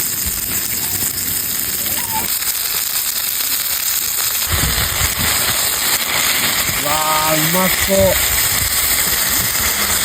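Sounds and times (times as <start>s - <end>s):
food sizzling over campfire: 0.0s - 10.0s.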